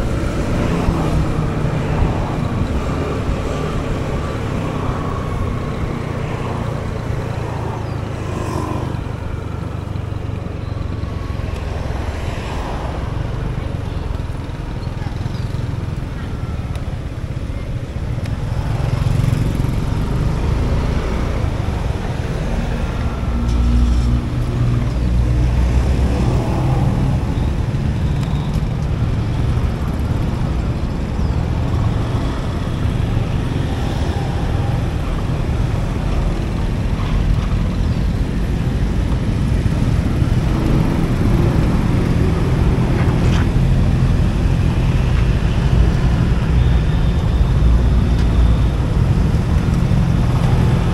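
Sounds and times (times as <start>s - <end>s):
road noise: 0.0s - 50.9s
traffic passing: 0.0s - 50.9s.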